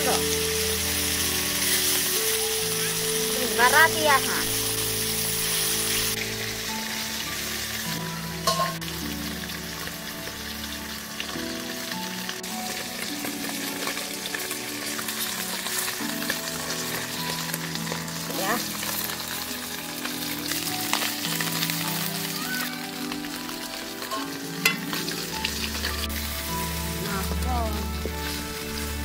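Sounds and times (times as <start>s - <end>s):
food sizzling in hot oil: 0.0s - 29.0s
metal spatula clinking on pan: 8.4s - 8.8s.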